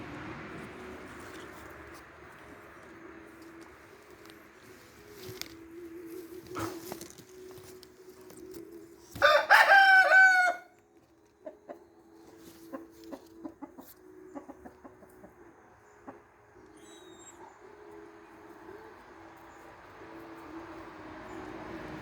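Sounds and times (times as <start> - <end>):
rooster crowing: 9.2 - 10.7.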